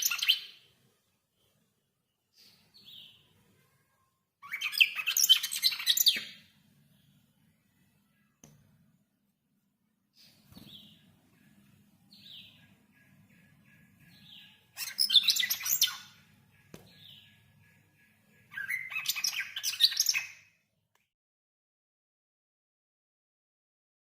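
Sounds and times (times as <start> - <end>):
small bird chirping: 0.0 - 9.1, 10.1 - 20.7.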